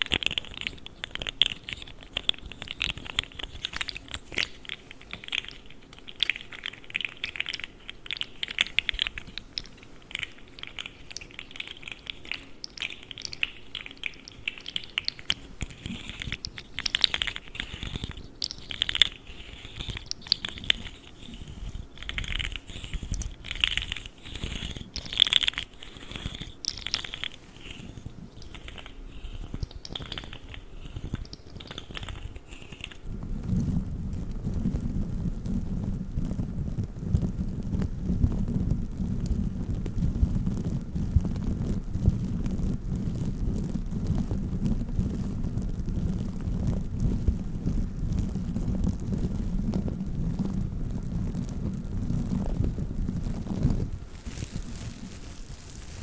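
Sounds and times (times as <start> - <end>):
plastic toy clicking and rattling: 0.0 - 33.1.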